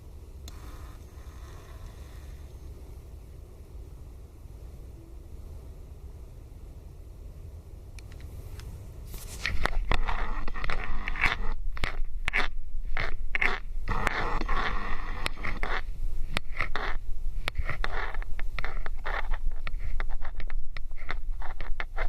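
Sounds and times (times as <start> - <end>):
steady low rumble: 0.0 - 13.9.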